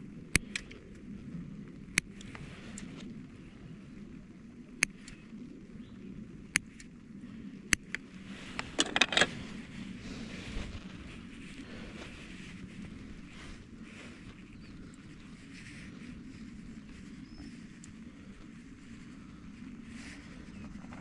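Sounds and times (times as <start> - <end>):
low background hum: 0.0 - 21.0
sharp clicks: 0.3 - 0.8
rattling clicks: 8.6 - 9.4.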